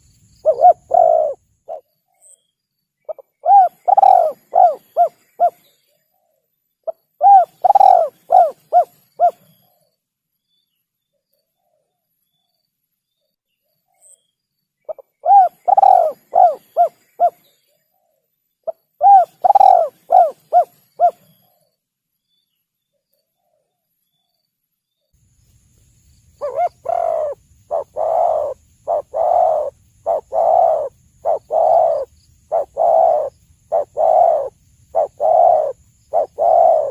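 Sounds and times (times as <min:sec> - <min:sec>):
dove cooing: 0:00.0 - 0:01.9, 0:03.1 - 0:05.6, 0:06.9 - 0:09.5, 0:14.9 - 0:17.4, 0:18.7 - 0:21.4, 0:26.4 - 0:36.9.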